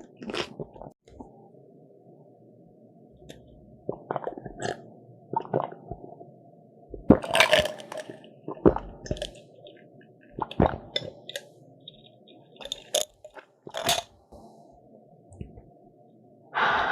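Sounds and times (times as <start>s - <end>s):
crunchy bites and chewing: 0.0s - 0.6s.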